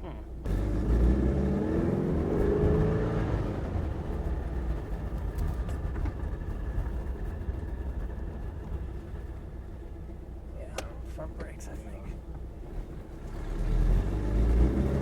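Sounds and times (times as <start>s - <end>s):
car engine revving: 0.4s - 7.7s, 12.6s - 15.0s.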